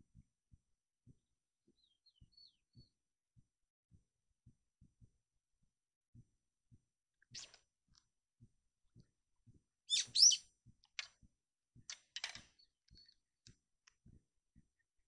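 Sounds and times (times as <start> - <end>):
small bird chirping: 1.8 - 3.0, 7.2 - 7.6, 9.9 - 10.5, 12.5 - 13.2.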